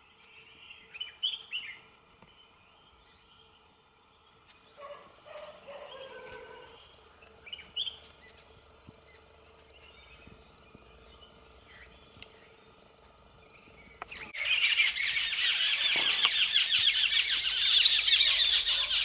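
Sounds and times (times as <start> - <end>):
falling bird call: 14.1 - 19.0.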